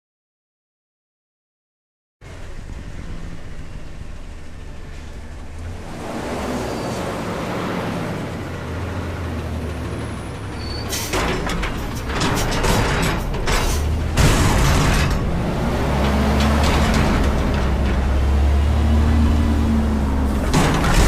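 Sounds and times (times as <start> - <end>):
garbage truck engine running: 2.2 - 21.0
metal clanks and clatter: 10.7 - 18.4, 20.2 - 21.0.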